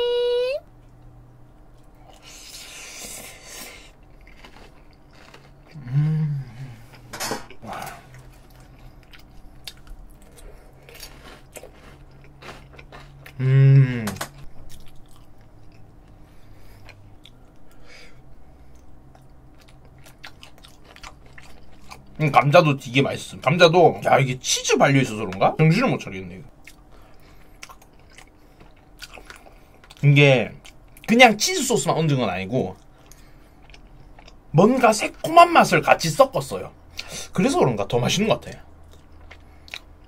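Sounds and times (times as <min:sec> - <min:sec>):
person humming: 0:00.0 - 0:00.6, 0:05.8 - 0:08.1, 0:13.4 - 0:14.3
chewing and slurping: 0:01.8 - 0:05.9, 0:07.8 - 0:13.4, 0:18.6 - 0:22.2.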